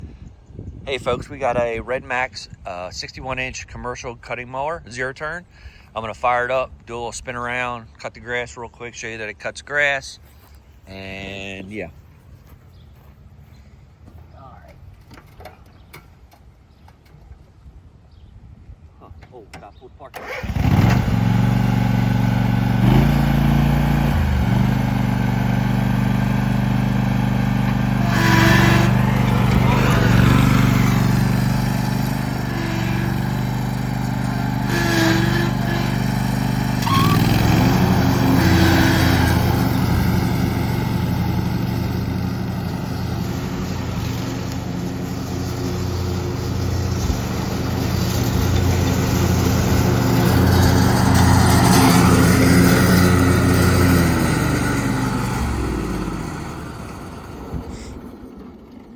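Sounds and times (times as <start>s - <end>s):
mower engine running under load: 20.2s - 58.9s.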